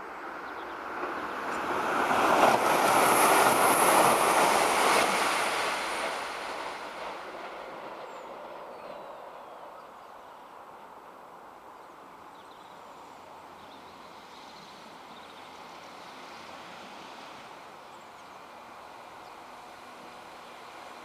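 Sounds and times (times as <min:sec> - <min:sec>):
train wheels rushing on rail: 0:00.7 - 0:09.4.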